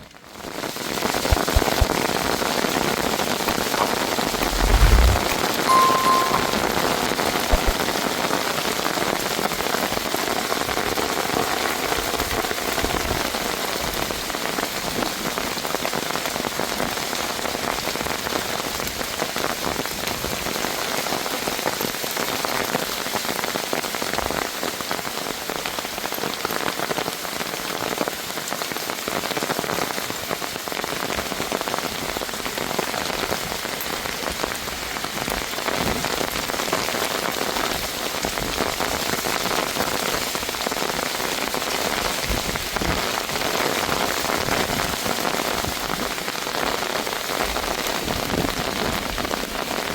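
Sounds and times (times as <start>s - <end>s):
heavy rain on hard surface: 0.0s - 4.6s, 8.4s - 49.9s.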